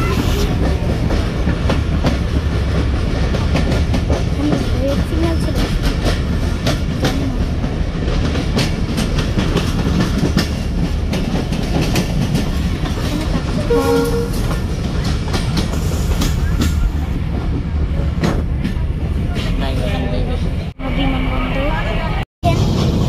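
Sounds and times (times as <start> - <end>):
train rumble inside carriage: 0.0 - 23.0
wheels clacking over rail joints: 0.3 - 19.7
train horn note: 13.6 - 14.6.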